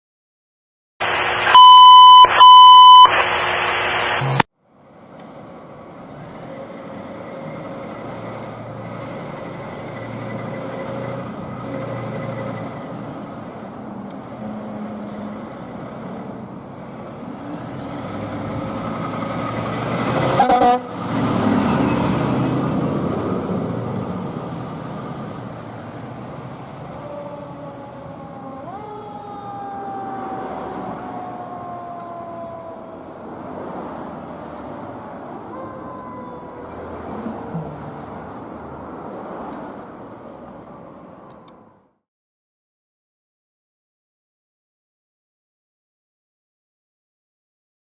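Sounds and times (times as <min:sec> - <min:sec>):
truck engine: 0:01.0 - 0:42.0
road noise: 0:01.0 - 0:42.1
fire truck horn blasts: 0:20.3 - 0:21.1.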